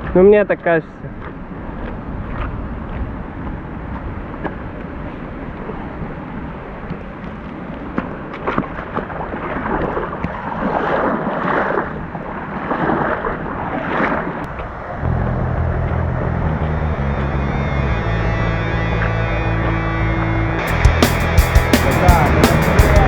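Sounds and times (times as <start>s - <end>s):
rushing water: 0.1s - 15.0s
water splashes: 1.1s - 15.0s
low steady music tone: 15.0s - 23.0s.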